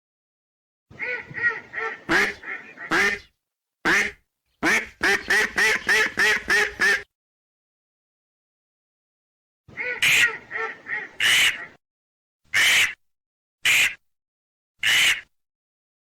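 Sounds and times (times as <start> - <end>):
duck quacking: 0.9 - 7.1, 9.7 - 11.8, 12.5 - 13.0, 13.6 - 14.0, 14.8 - 15.3.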